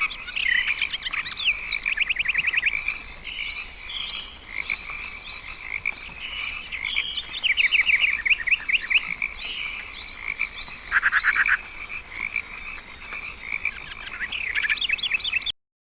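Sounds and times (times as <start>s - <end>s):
frog chorus: 0.0s - 15.5s.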